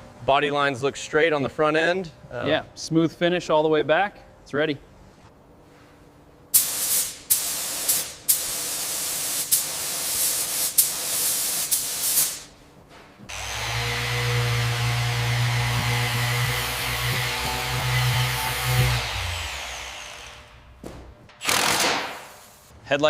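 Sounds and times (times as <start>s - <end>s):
compressed air spray hissing: 6.6s - 12.6s
power tool humming: 13.3s - 20.7s.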